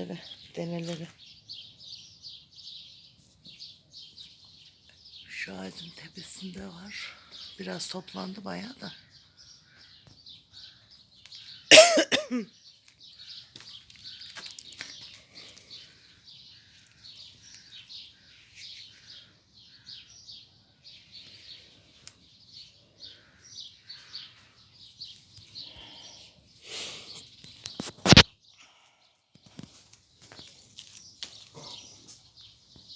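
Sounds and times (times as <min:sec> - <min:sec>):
songbirds chirping: 0:00.0 - 0:32.9
person coughing: 0:11.7 - 0:12.5.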